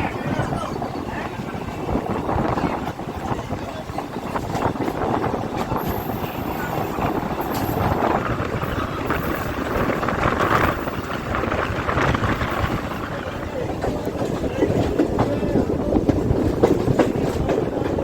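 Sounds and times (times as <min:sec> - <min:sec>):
train rumbling along track: 0:00.0 - 0:18.0
wheels and carriages clicking and rattling: 0:00.0 - 0:18.0.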